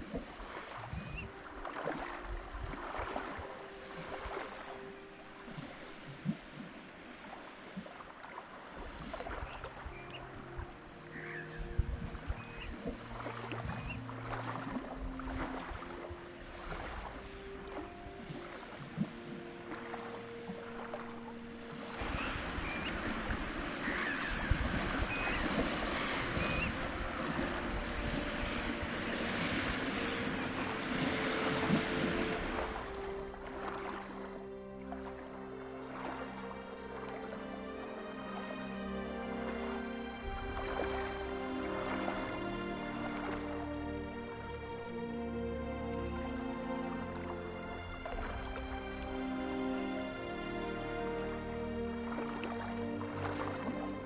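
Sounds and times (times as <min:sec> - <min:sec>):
water at a shore: 0:00.0 - 0:54.0
wind: 0:00.0 - 0:54.0
wind buffeting microphone: 0:11.6 - 0:14.0, 0:22.0 - 0:32.5
high whistled bird calls: 0:22.0 - 0:27.7.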